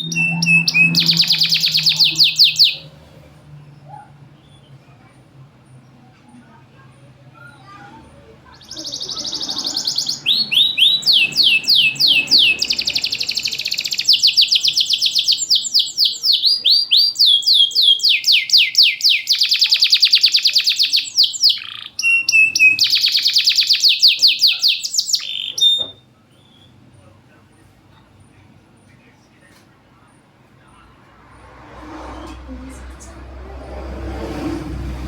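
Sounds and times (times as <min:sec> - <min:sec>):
canary singing trills: 0:00.0 - 0:04.9, 0:05.8 - 0:27.1.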